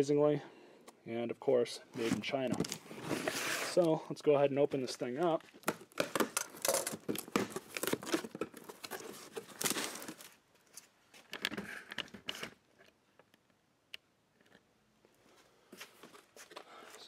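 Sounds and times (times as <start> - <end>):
cardboard box flaps rustling: 2.0 - 3.8.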